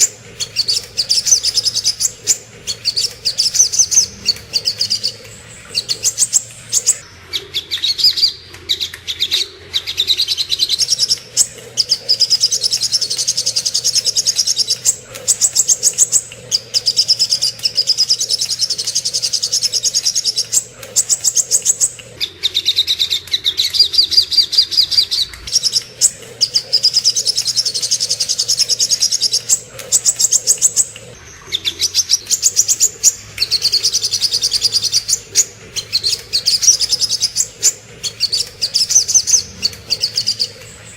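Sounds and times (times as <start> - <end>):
birdsong rapid high chipping: 0.0 - 40.9.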